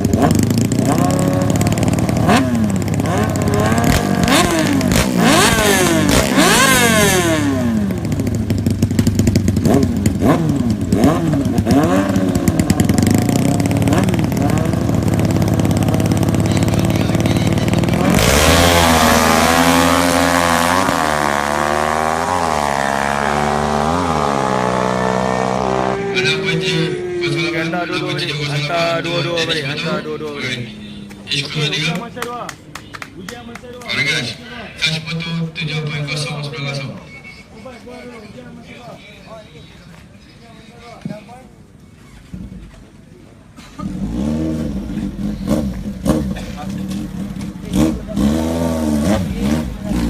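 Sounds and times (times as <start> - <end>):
engine accelerating through gears: 0.0 - 27.4, 43.8 - 50.0
superbike engines revving: 0.0 - 32.2, 41.6 - 50.0.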